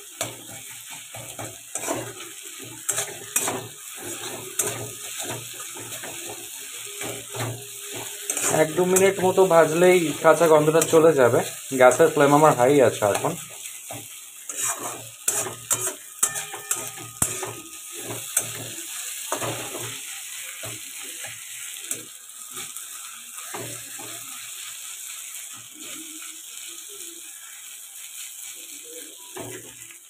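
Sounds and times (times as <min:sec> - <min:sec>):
metal spatula scraping a pan: 0:00.0 - 0:22.8
onions sizzling in a pan: 0:00.0 - 0:30.0.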